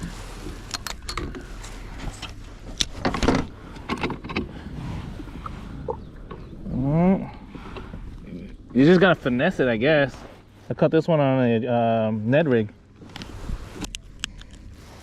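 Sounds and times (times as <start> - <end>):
fishing gear knocking and clicking: 0.6 - 1.5.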